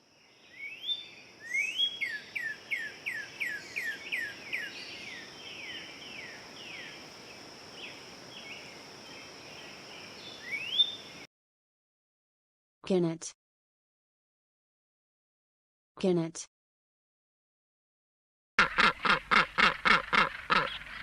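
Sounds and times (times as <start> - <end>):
cardinal whistled song: 0.6 - 4.7, 10.4 - 11.0
high insect trill: 1.4 - 11.3.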